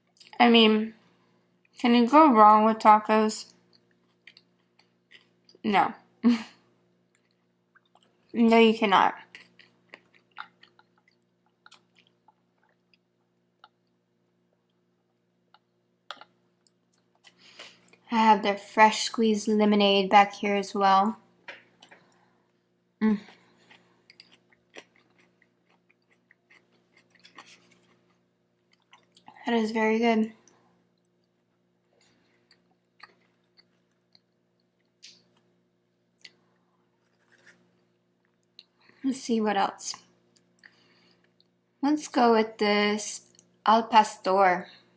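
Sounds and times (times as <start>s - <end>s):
faint steady hum: 0.0s - 44.9s
chewing mouth clicks: 3.7s - 5.6s, 9.3s - 14.0s, 23.6s - 29.4s, 32.0s - 35.5s.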